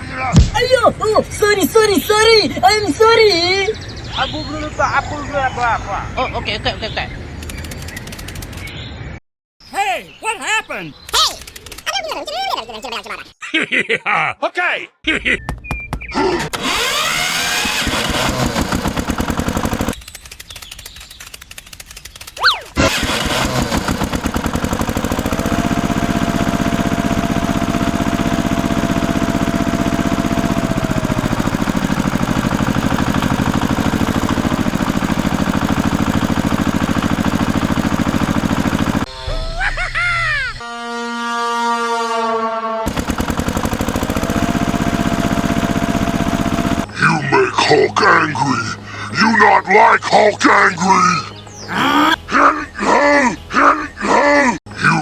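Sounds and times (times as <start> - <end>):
small engine rattling: 7.3 - 8.8, 11.1 - 12.2, 16.5 - 39.1, 42.9 - 46.9
wavering rising and falling cry: 39.1 - 40.6, 51.2 - 54.6
steady horn note: 40.6 - 42.9.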